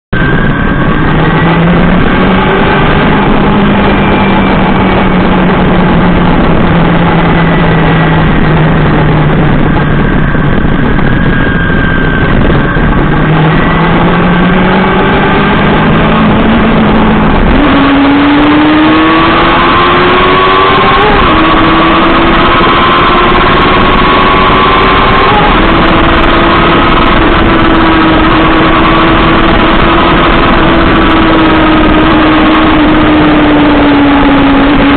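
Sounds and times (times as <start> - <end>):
motorcycle engine running: 0.0 - 34.9
wind noise on microphone: 0.1 - 34.9.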